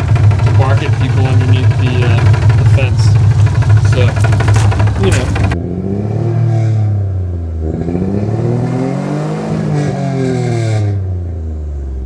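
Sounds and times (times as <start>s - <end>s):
car engine running: 0.0s - 6.2s.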